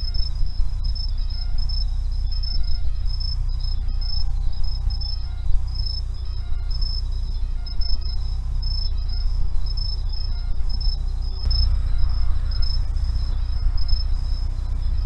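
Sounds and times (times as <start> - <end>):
crickets chirping: 0.0 - 15.0
low rumble: 0.0 - 15.0.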